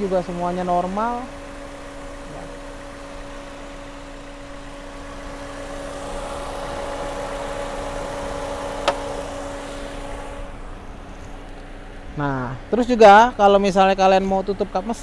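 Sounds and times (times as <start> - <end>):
car engine idling: 0.0 - 15.0
sharp click: 8.8 - 9.1.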